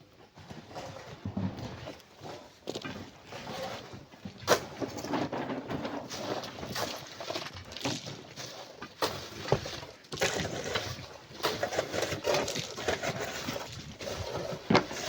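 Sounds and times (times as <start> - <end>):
sand and stone being dug: 5.9 - 15.0.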